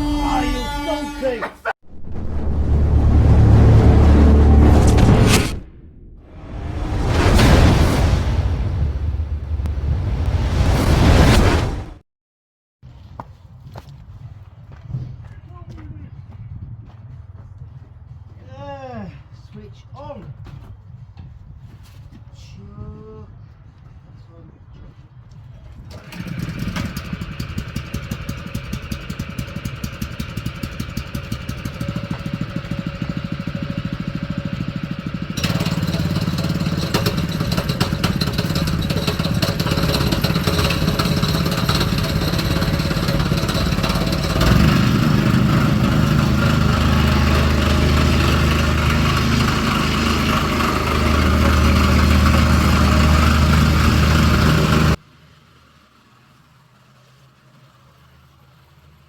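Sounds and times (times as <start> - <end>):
engine running: 1.9 - 11.8, 25.9 - 55.6.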